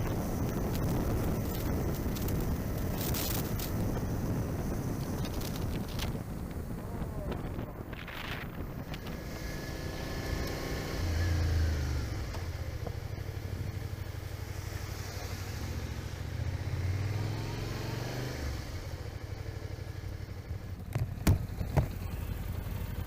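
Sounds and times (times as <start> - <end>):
wind noise: 0.0 - 10.8
motorcycle engine: 0.0 - 23.0.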